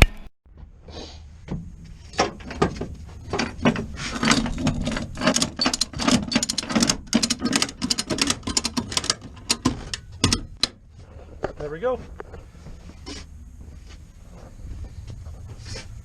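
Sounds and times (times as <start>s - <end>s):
ratchet straps clicking: 4.1s - 10.8s.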